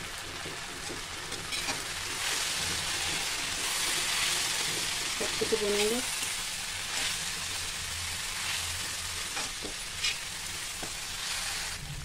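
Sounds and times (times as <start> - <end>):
okra sizzling in oil: 0.0 - 12.0
metal spatula scraping pan: 1.4 - 3.9, 9.3 - 10.3.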